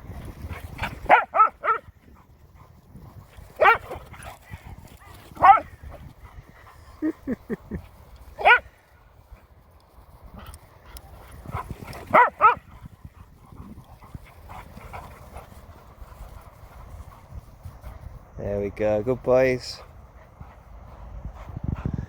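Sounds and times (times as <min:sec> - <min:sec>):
dog barking and yipping: 0:00.8 - 0:01.9, 0:03.6 - 0:04.3, 0:05.0 - 0:05.8, 0:08.4 - 0:08.7, 0:11.5 - 0:12.8.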